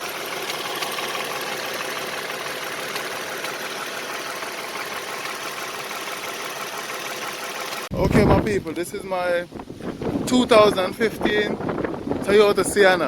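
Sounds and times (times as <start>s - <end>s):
car engine idling: 0.0s - 7.9s
rapid light engine ticking: 0.0s - 7.9s.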